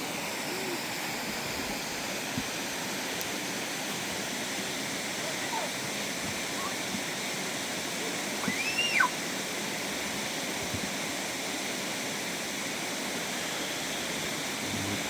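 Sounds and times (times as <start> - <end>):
flowing water rushing: 0.0 - 15.0
short high call: 8.4 - 9.1.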